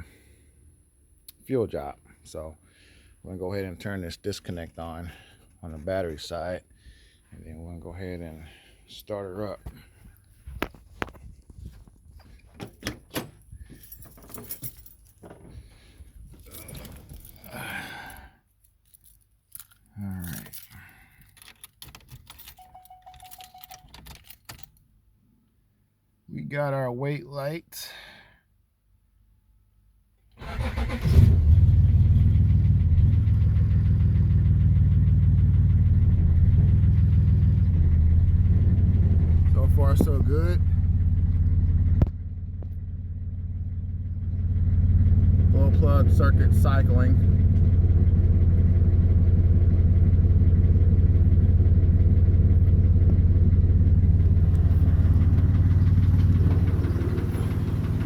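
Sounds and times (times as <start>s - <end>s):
keys jangling: 12.6s - 15.5s, 16.3s - 17.7s, 18.6s - 24.8s
diesel engine cranking: 30.4s - 58.0s
diesel engine idling: 32.0s - 58.0s.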